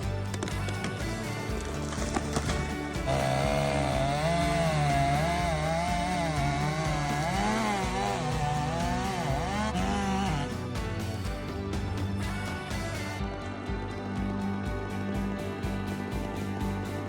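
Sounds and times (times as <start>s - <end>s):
chainsaw cutting wood: 0.3s - 11.3s.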